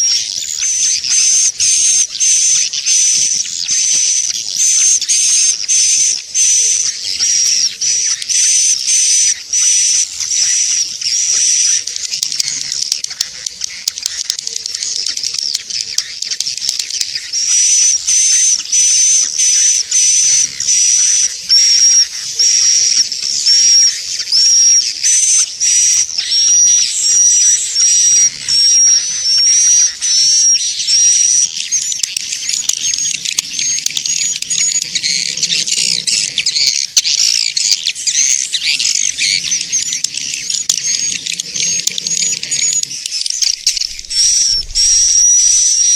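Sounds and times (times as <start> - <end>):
swiftlet lure call chirps: 0.0 - 45.9.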